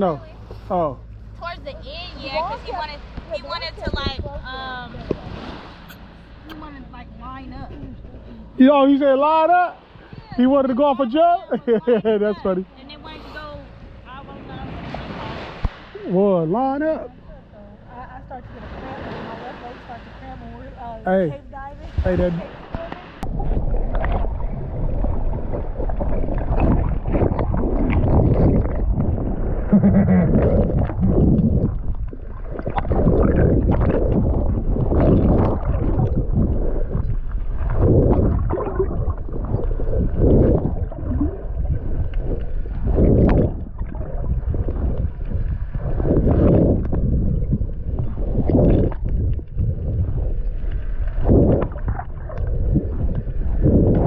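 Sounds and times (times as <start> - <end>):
water sloshing and splashing: 0.0 - 8.6, 13.6 - 16.2, 21.7 - 54.0.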